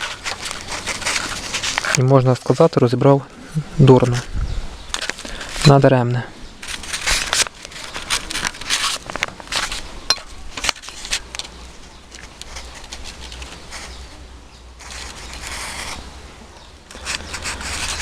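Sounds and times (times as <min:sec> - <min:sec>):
rubbing scrape: 0:00.0 - 0:02.6, 0:14.8 - 0:16.1, 0:16.9 - 0:18.0.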